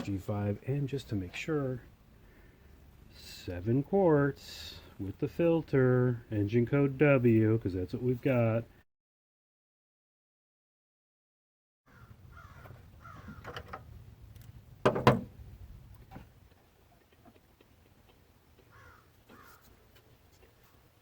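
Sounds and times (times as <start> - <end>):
crows cawing: 11.9 - 13.5, 18.7 - 19.7
loud clunk: 14.8 - 15.3.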